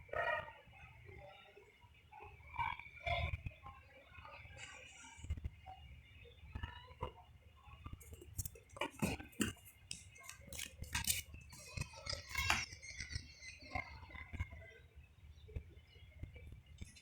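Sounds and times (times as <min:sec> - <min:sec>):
cats playing knocks and clinks: 0:08.0 - 0:13.8.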